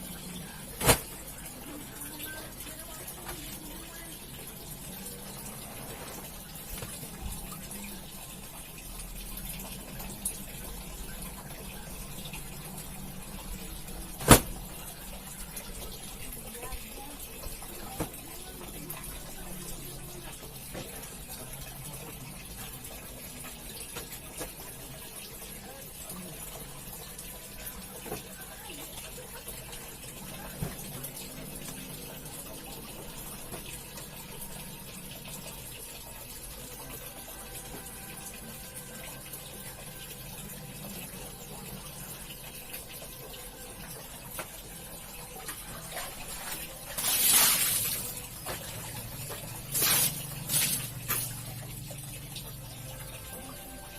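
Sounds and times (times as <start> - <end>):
water running: 0.0 - 53.9
small clicks and splashes: 45.4 - 52.6.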